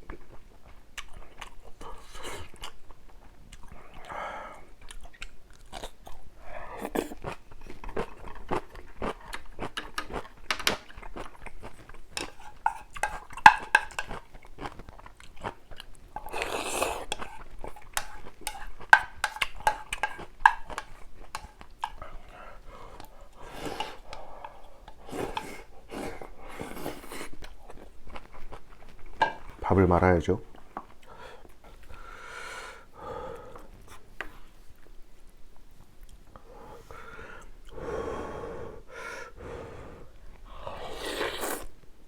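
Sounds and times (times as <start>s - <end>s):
chewing with wet mouth sounds: 0.0s - 29.6s.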